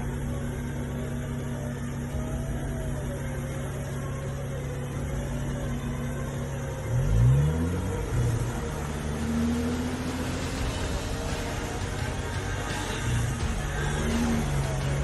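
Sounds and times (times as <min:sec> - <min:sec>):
vehicle engine running and revving: 0:00.0 - 0:15.0.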